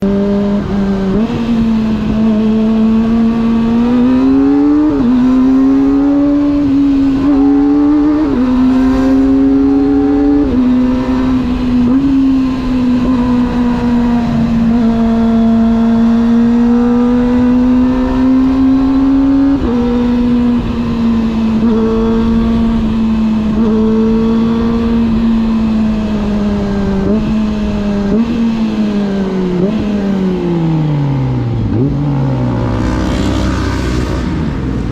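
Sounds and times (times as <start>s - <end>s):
motorcycle engine shifting gears: 0.0s - 34.9s.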